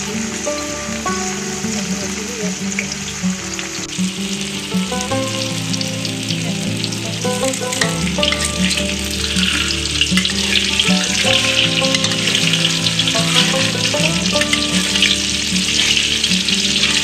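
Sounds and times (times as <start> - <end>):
background music: 0.0 - 17.0
tofu sizzling in oil: 0.0 - 17.0.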